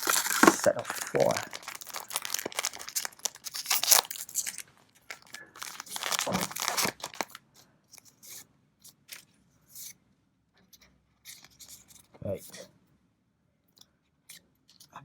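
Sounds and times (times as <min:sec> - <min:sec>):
cards rustling by hand: 0:00.0 - 0:10.0, 0:11.3 - 0:12.1.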